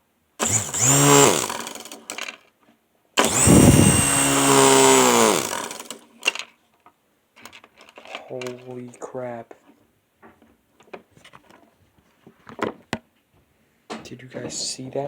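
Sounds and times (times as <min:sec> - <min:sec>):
toy helicopter motor whining: 0:00.4 - 0:02.2, 0:03.2 - 0:06.1.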